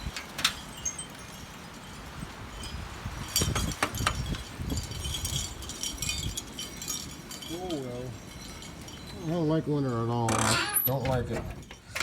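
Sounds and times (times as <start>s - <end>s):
gusty wind buffeting microphone: 0.0s - 7.5s
wind chimes tinkling: 0.0s - 12.0s.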